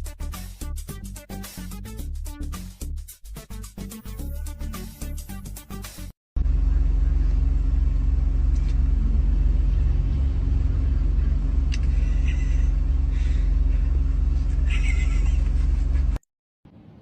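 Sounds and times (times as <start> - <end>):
low rumble with hum: 6.4 - 17.0.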